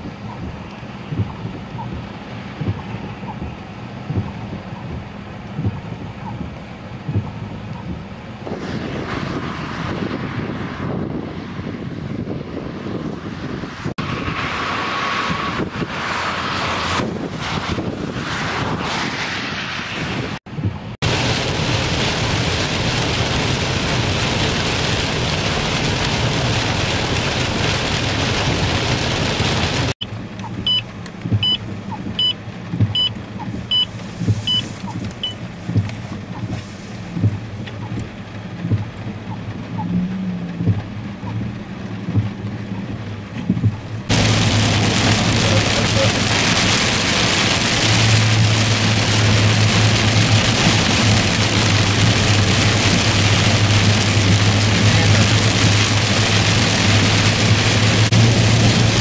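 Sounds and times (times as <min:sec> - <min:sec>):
heavy rain and tyre spray: 0:00.0 - 0:59.0
low engine hum: 0:00.0 - 0:59.0
high beeps: 0:30.6 - 0:30.8, 0:31.4 - 0:31.6.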